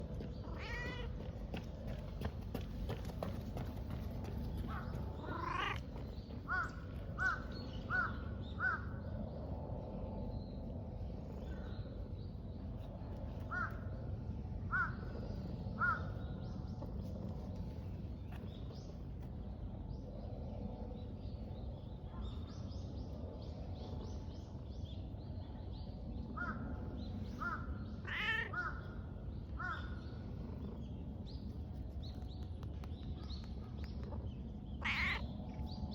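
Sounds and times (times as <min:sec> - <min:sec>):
low outdoor background: 0:00.0 - 0:35.9
crows cawing: 0:04.7 - 0:05.8, 0:06.5 - 0:08.9, 0:13.5 - 0:13.7, 0:14.7 - 0:15.0, 0:27.4 - 0:29.0, 0:29.6 - 0:30.0, 0:34.8 - 0:35.2.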